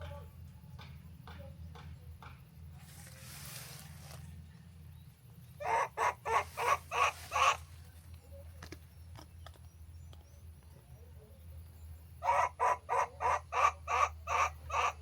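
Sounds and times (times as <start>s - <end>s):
animal harsh calls: 5.6s - 7.7s, 12.2s - 15.0s.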